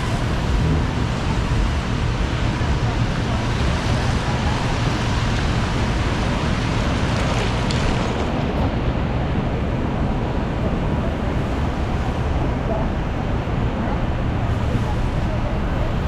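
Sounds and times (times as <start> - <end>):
city traffic on wet streets: 0.0 - 16.0.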